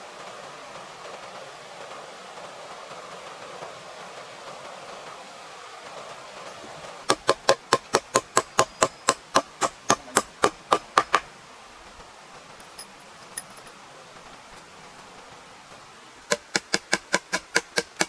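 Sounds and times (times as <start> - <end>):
rapid hammer blows: 7.0 - 12.0, 14.3 - 18.0.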